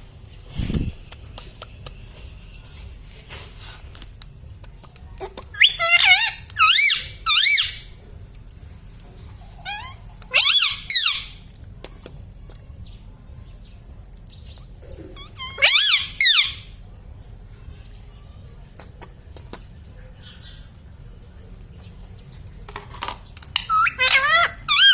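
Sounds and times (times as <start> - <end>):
parrot warbling calls: 5.5 - 7.9, 9.6 - 11.4, 15.2 - 16.7, 23.6 - 24.9.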